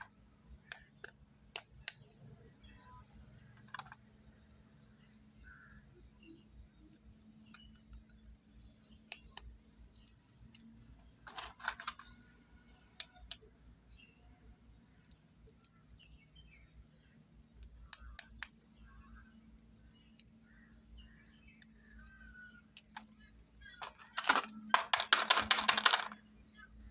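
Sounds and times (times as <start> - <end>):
faint steady hum: 0.0 - 26.9
plastic toy pieces clicking: 11.3 - 12.2, 23.7 - 26.2
rustling clatter: 23.8 - 26.2.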